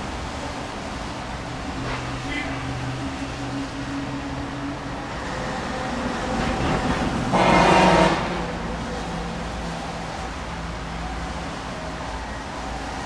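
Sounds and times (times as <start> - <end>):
vehicle horn: 7.3 - 8.5.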